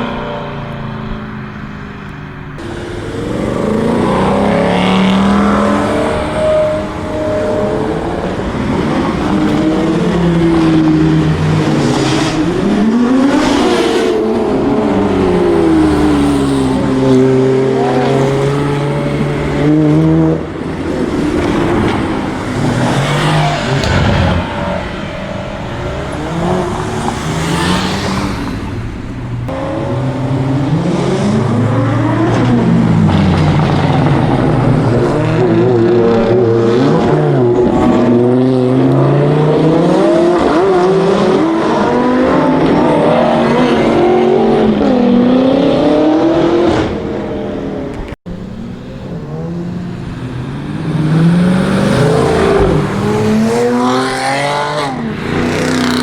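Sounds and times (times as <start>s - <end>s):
cars revving and passing by: 0.0s - 56.0s.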